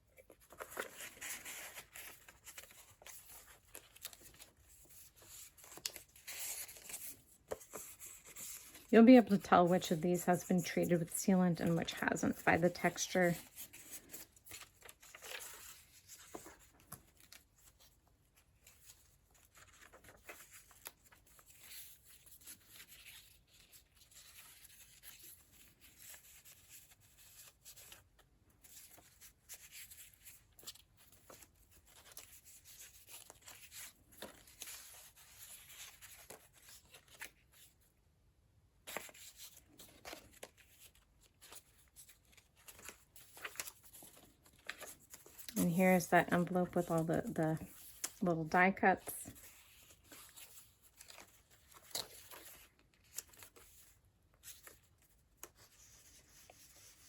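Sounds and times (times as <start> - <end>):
paper pages rustling: 0.1 - 37.9, 38.8 - 57.0.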